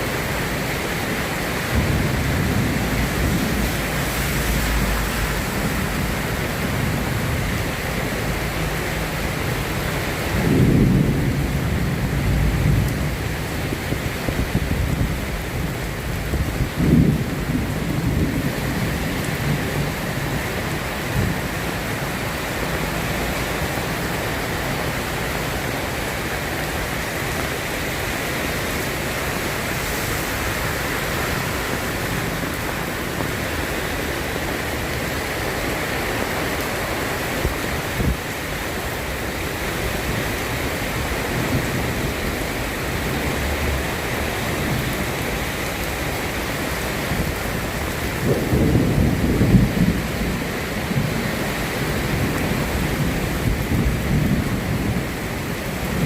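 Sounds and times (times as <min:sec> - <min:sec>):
soft rain pattering: 0:00.0 - 0:56.0
low thunder rumble: 0:01.0 - 0:25.2, 0:39.1 - 0:56.0.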